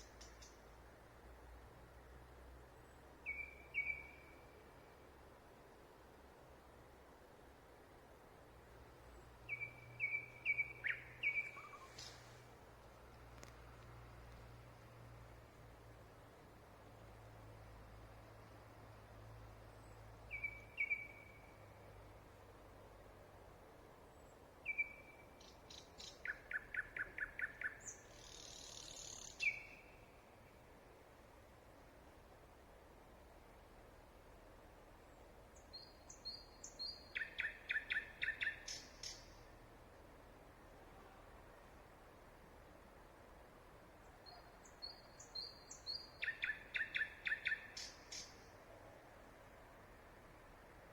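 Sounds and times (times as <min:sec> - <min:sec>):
songbird singing: 0:00.0 - 0:00.9, 0:02.6 - 0:05.0, 0:08.8 - 0:16.0, 0:17.5 - 0:22.6, 0:24.0 - 0:30.8, 0:34.8 - 0:39.8, 0:43.9 - 0:50.6
faint steady hiss: 0:00.0 - 0:50.9.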